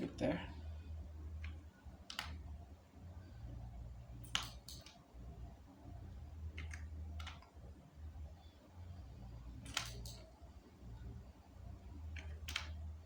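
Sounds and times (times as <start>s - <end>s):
low steady hum: 0.0s - 13.0s
mouse and keyboard clicks: 1.4s - 2.4s, 4.2s - 5.0s, 6.5s - 7.5s, 9.6s - 10.3s, 12.1s - 12.8s.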